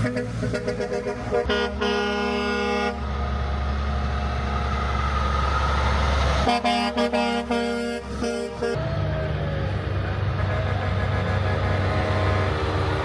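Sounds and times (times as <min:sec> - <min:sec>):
truck air horn toots: 0:00.0 - 0:04.0, 0:06.2 - 0:08.8, 0:10.2 - 0:13.0
heavy truck engine rumble passing: 0:00.0 - 0:13.0.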